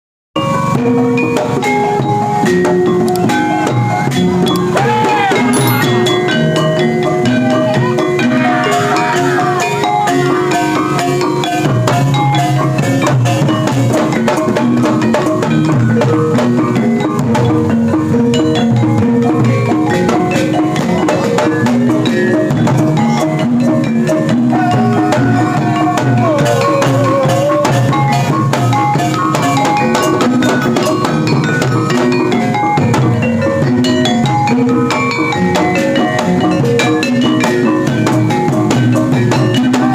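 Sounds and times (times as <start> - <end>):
drums: 0.4 - 39.9
metal mallet instruments: 0.4 - 39.9
wavering held melodic tone: 1.3 - 8.3.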